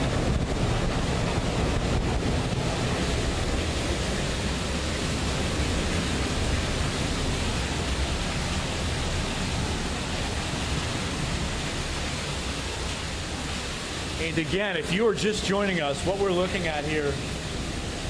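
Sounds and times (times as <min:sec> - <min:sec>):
wind buffeting microphone: 0:00.0 - 0:14.2
driving rain: 0:00.0 - 0:18.0
hurricane winds: 0:00.0 - 0:18.0.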